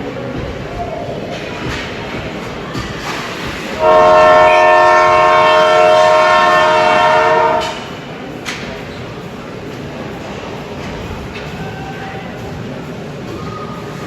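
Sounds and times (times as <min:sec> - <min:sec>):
crowd noise: 0:00.0 - 0:14.0
arena horn chord: 0:03.8 - 0:07.8.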